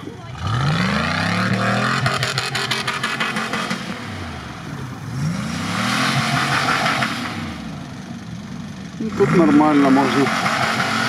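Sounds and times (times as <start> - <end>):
engine revving hard: 0.3 - 4.5, 5.1 - 7.7, 9.0 - 11.0.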